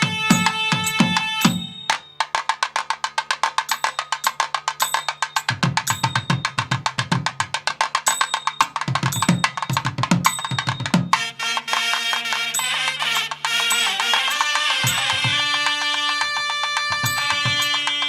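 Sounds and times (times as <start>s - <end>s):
low drum: 0.0s - 1.9s, 16.9s - 18.0s
fast sharp percussion strokes: 0.0s - 18.0s.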